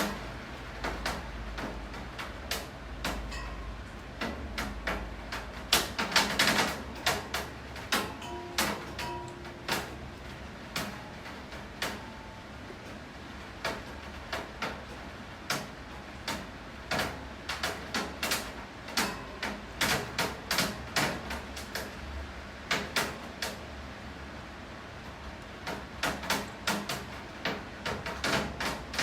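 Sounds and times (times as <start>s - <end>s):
raindrops tapping hard surface: 0.0s - 12.8s
low rain hiss: 0.0s - 29.0s.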